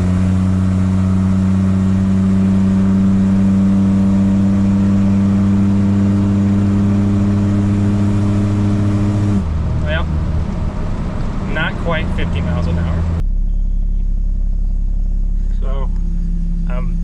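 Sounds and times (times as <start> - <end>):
engine at full throttle: 0.0 - 17.0.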